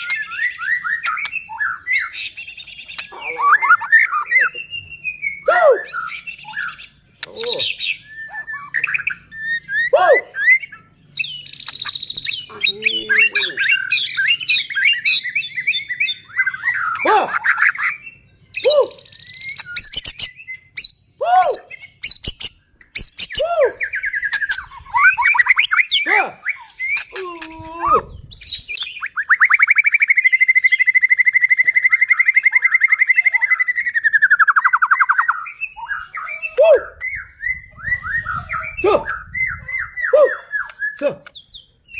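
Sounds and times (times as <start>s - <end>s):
bird singing whistles and squawks: 0.0s - 41.9s.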